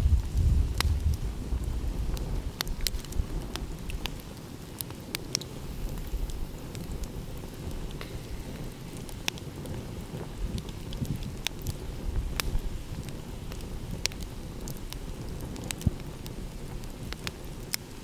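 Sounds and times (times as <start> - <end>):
campfire crackling: 0.0 - 18.0
wind: 0.0 - 18.0.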